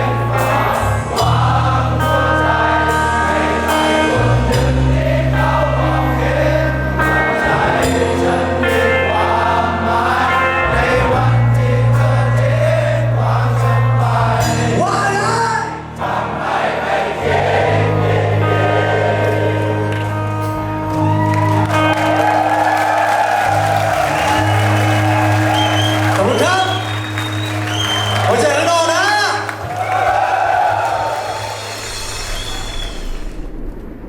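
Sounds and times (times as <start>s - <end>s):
live band music: 0.0s - 12.8s, 13.7s - 30.0s
group of voices singing: 0.0s - 20.7s
bass line: 0.0s - 34.0s.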